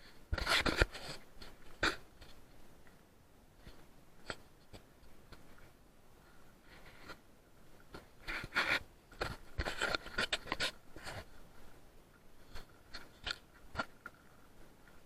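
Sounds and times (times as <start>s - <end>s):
scraping and rustling: 7.9s - 11.4s.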